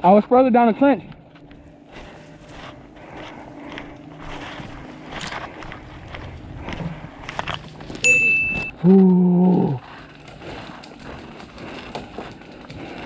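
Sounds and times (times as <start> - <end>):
footsteps: 1.0 - 13.0
gear rustling: 1.2 - 13.0
high-pitched tone: 8.0 - 8.8.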